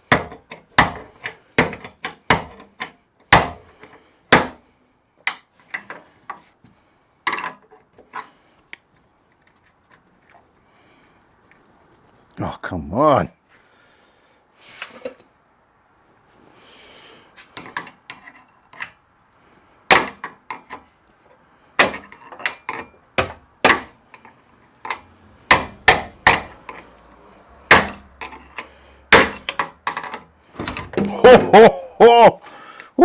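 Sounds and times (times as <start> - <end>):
hammer striking metal hinge: 0.0 - 3.7, 4.3 - 4.6, 19.9 - 20.8, 21.8 - 24.0, 24.9 - 26.8, 27.7 - 31.6.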